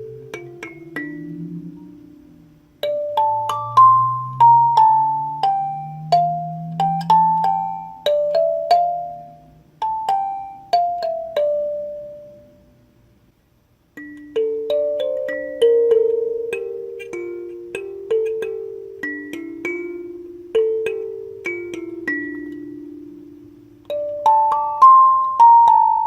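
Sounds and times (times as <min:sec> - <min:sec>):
kalimba melody: 0:00.0 - 0:12.8, 0:14.0 - 0:26.0.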